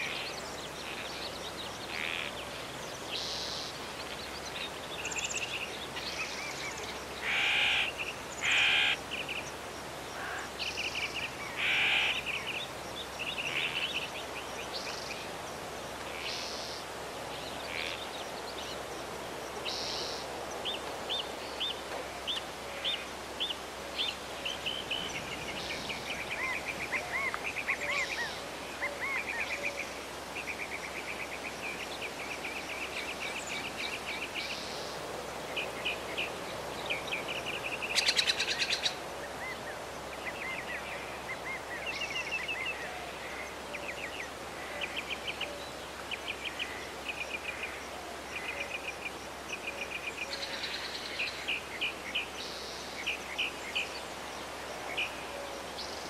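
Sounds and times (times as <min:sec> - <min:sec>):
birds chirping and trilling: 0:00.0 - 0:19.0
steady outdoor hiss: 0:00.0 - 0:56.0.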